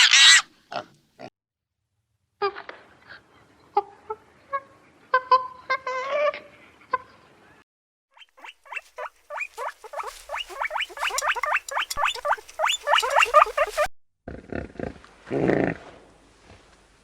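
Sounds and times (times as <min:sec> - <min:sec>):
animal squealing calls: 0:00.0 - 0:00.5, 0:08.2 - 0:13.9.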